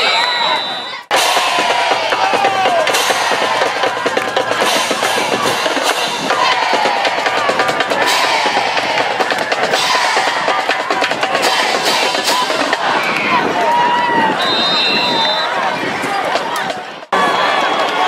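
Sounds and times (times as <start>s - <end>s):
crowd voices: 0.0s - 18.0s
bass and snare drums: 1.1s - 15.5s.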